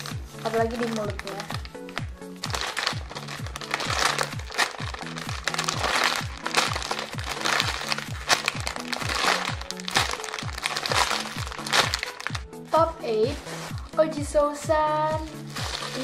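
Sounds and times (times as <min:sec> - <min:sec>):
foam toy crinkling: 0:00.0 - 0:12.4, 0:15.2 - 0:16.0
background music with bass beat: 0:00.0 - 0:16.0.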